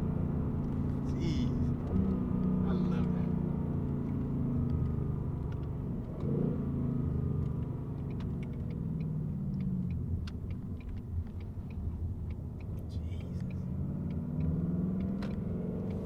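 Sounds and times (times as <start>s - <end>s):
car engine running at low revs: 0.0s - 16.0s.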